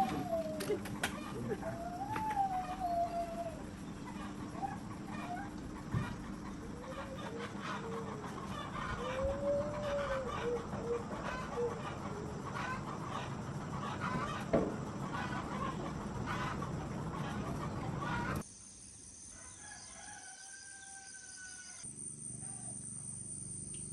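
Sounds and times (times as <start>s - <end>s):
rooster crowing: 0.0s - 13.0s, 19.3s - 22.7s
chickens clucking: 0.0s - 18.4s
high insect buzz: 0.0s - 23.9s.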